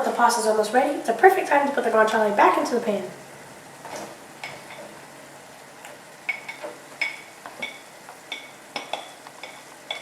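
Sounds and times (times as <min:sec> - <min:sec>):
metal utensil clinking on pan: 0:06.3 - 0:10.0.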